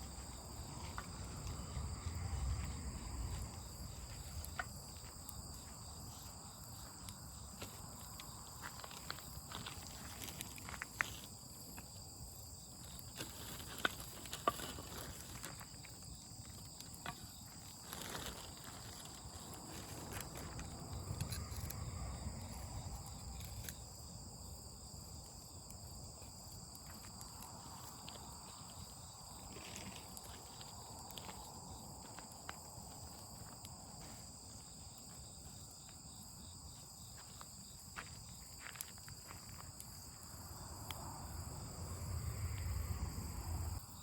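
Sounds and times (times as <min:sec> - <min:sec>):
crickets trilling: 0:00.0 - 0:44.0
campfire crackles and pops: 0:00.2 - 0:33.9
low rumble: 0:00.7 - 0:04.6, 0:40.9 - 0:43.8.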